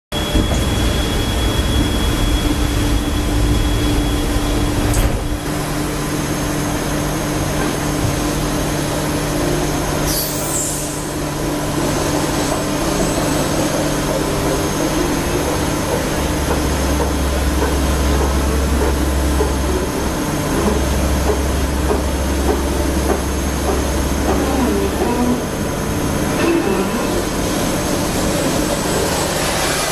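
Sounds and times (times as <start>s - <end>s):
deeper hum: 0.1s - 6.5s.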